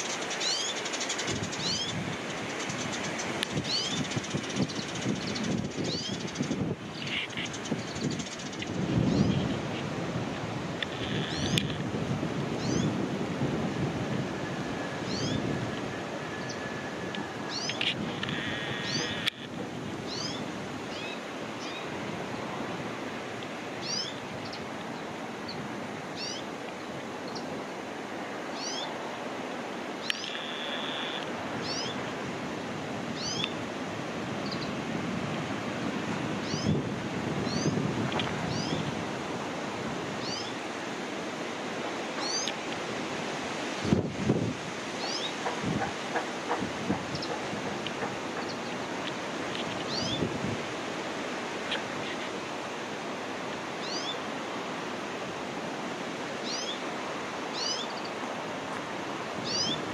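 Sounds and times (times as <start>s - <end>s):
small birds chirping: 0.0s - 9.8s, 10.8s - 11.8s, 12.6s - 13.0s, 15.1s - 15.4s, 17.4s - 19.5s, 20.1s - 21.9s, 23.8s - 25.6s, 26.2s - 27.5s, 28.6s - 29.0s, 30.0s - 32.0s, 33.2s - 33.6s, 34.4s - 34.8s, 36.4s - 36.8s, 37.4s - 37.8s, 38.4s - 38.9s, 40.2s - 40.6s, 42.2s - 42.6s, 45.0s - 45.4s, 47.0s - 50.3s, 53.8s - 54.2s, 56.4s - 56.8s, 57.5s - 58.2s, 59.4s - 59.9s
steady background hiss: 0.0s - 59.9s
bird drawn-out call: 10.9s - 11.8s, 16.3s - 21.9s, 30.0s - 32.0s.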